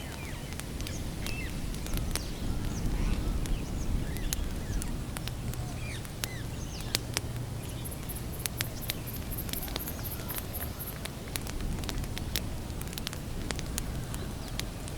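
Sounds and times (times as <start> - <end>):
campfire crackling: 0.0 - 14.9
bird chirps: 7.6 - 11.0.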